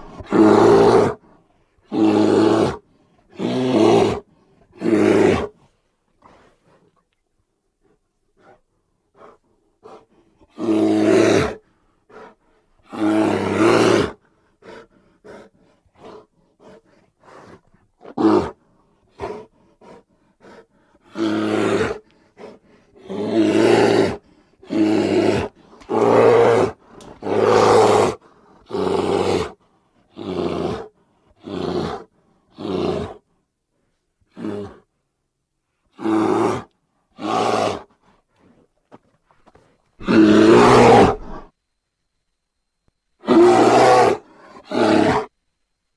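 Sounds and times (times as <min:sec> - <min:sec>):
bear roaring: 0:00.0 - 0:05.6, 0:09.2 - 0:33.2, 0:34.3 - 0:34.9, 0:36.0 - 0:38.6, 0:40.0 - 0:41.5, 0:43.2 - 0:45.3.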